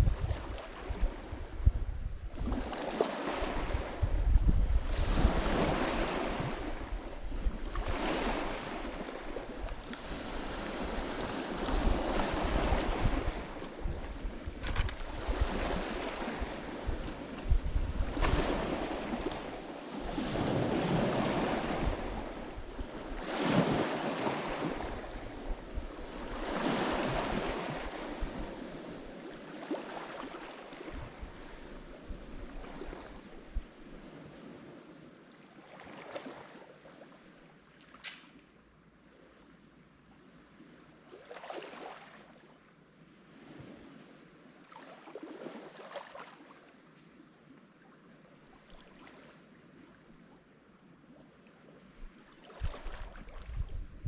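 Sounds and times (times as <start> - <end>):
wind buffeting microphone: 0.0 - 29.0, 52.0 - 54.0
waves washing onto shore: 0.0 - 36.8.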